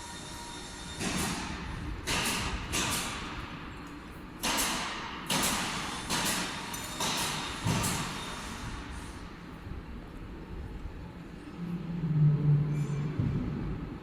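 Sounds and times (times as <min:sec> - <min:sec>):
hiss-like bursts: 0:00.0 - 0:03.3, 0:04.4 - 0:09.4.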